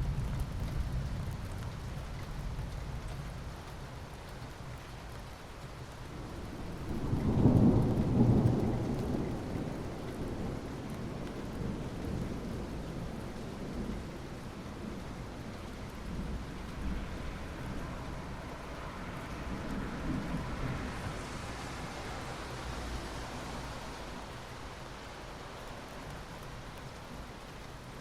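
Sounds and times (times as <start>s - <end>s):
steady rain: 0.0s - 28.0s
thunder rumbling: 6.3s - 22.6s.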